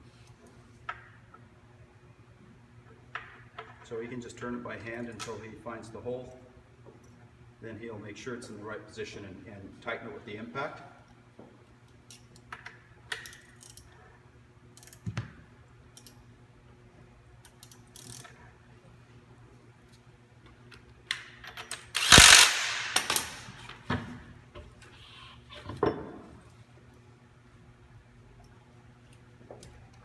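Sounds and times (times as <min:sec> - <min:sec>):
tools and metal parts clinking: 0:17.4 - 0:19.0, 0:21.2 - 0:23.8
impact wrench hammering: 0:22.0 - 0:23.7.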